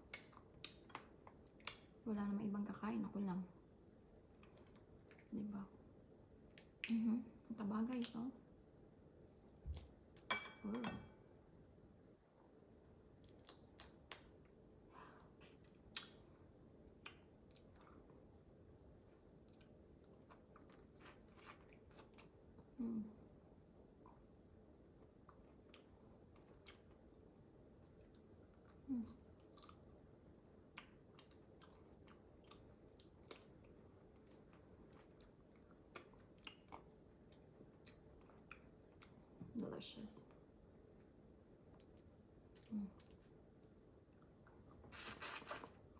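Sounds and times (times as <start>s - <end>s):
chewing and mouth sounds: 0.0s - 2.0s, 13.2s - 14.6s, 16.9s - 18.3s, 19.2s - 22.8s, 25.0s - 39.4s, 41.0s - 45.9s.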